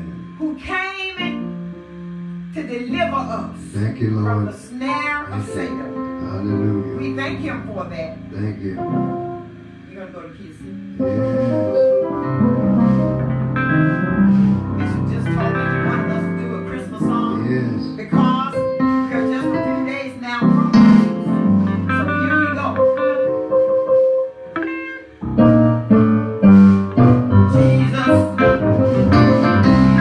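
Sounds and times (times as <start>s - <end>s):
guitar: 0.0s - 30.0s
keyboard: 0.0s - 30.0s
person singing: 11.0s - 12.0s.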